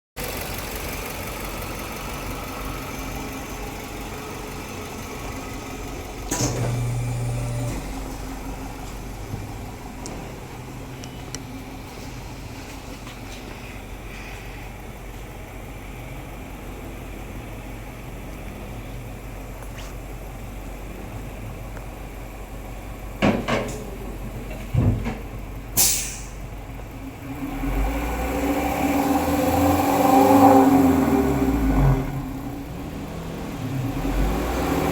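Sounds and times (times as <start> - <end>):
van engine idling: 0.2 - 27.4, 31.0 - 34.9
short hiss: 25.8 - 26.4.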